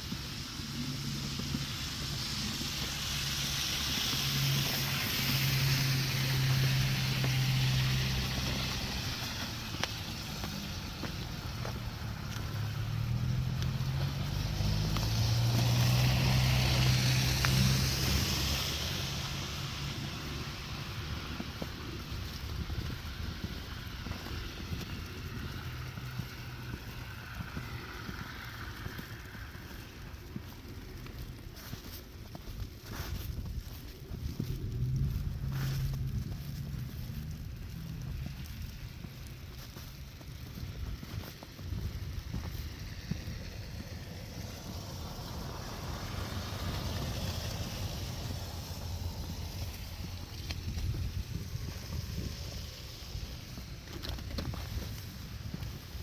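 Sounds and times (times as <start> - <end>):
wind buffeting microphone: 20.8 - 26.9, 32.3 - 56.0.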